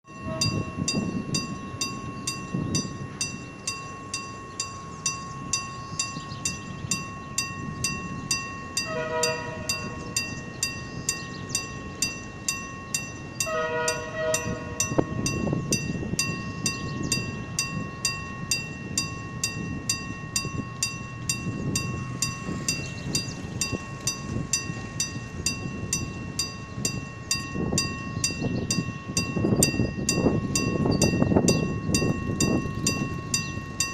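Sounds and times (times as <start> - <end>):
train horn blasts: 0.1 - 0.8, 8.8 - 10.2, 13.4 - 15.0
diesel locomotive rumbling: 0.1 - 33.9.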